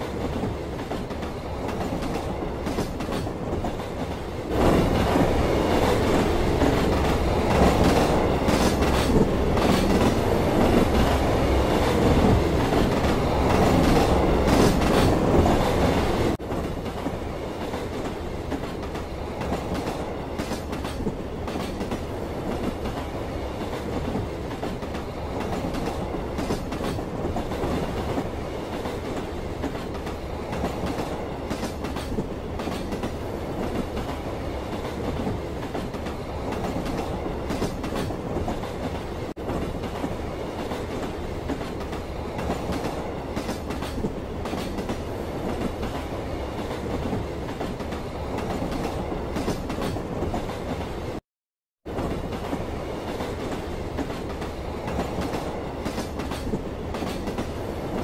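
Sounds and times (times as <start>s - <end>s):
wheels clacking over rail joints: 0.0s - 50.8s, 52.0s - 58.0s
train rumble: 0.0s - 51.2s, 51.8s - 58.0s.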